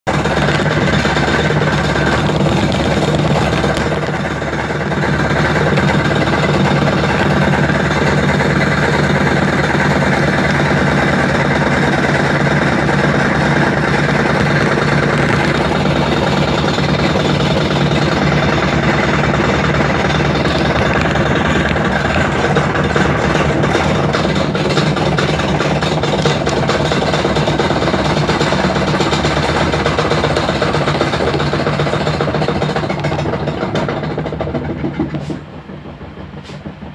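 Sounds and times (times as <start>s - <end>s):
rattling vibration: 0.0s - 36.9s
washing machine motor hum: 0.0s - 36.9s.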